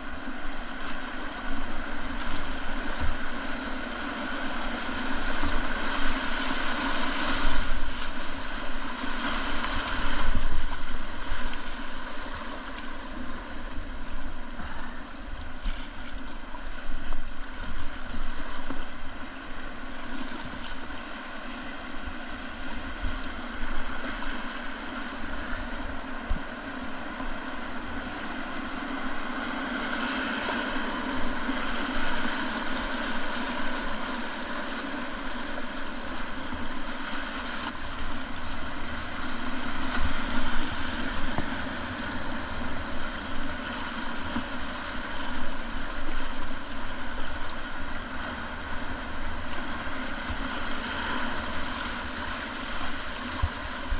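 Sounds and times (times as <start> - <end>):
whitewater river rushing: 0.0 - 15.4, 27.6 - 53.9.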